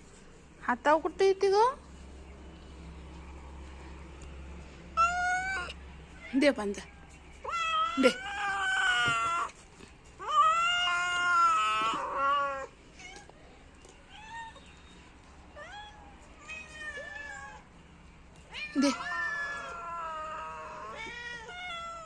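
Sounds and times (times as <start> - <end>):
cat meowing: 5.0 - 5.8, 18.5 - 22.0.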